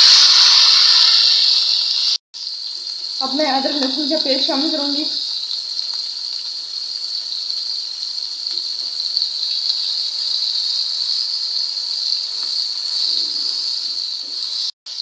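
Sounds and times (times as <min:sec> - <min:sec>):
onions and tomatoes frying in oil: 0:00.0 - 0:15.0.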